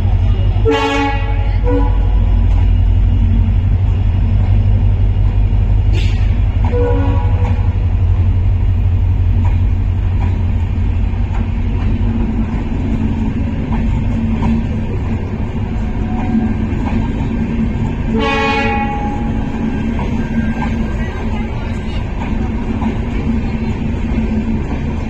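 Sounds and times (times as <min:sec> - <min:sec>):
diesel locomotive engine rumbling: 0:00.0 - 0:25.0
locomotive horn blast: 0:00.6 - 0:02.3, 0:05.9 - 0:07.8, 0:18.1 - 0:19.5.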